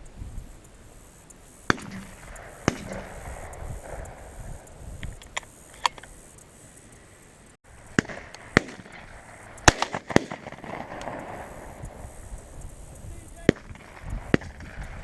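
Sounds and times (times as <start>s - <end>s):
shotguns firing: 1.7s - 4.3s, 7.9s - 11.6s, 13.4s - 15.0s.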